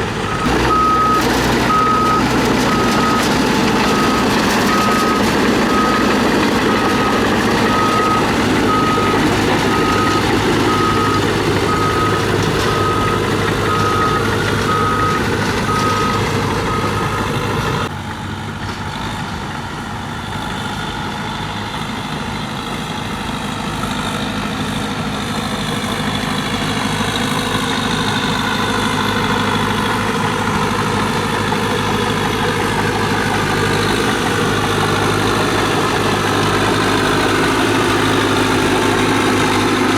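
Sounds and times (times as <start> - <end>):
diesel engine running: 0.0 - 39.9
reversing alarm beeping: 0.2 - 17.9.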